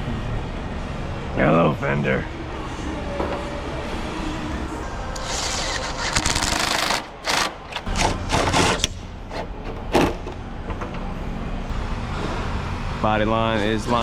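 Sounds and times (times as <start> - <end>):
power tool rattling bursts: 5.2 - 8.9.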